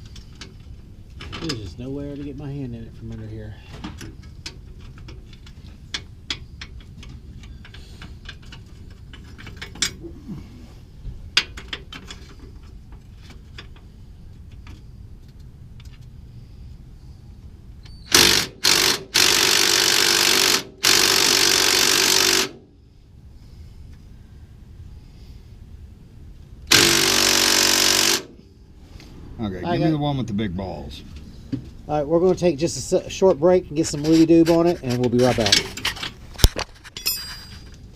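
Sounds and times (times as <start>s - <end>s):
impact wrench running: 18.1s - 22.6s, 26.7s - 28.4s
metal tools clinking: 33.8s - 37.9s.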